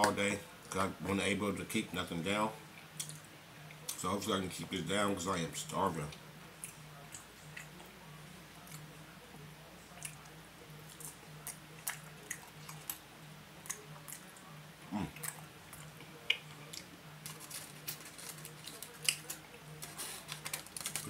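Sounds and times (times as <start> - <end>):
faint hum: 0.0 - 21.0
person chewing: 6.6 - 7.9, 10.9 - 13.0, 13.6 - 21.0.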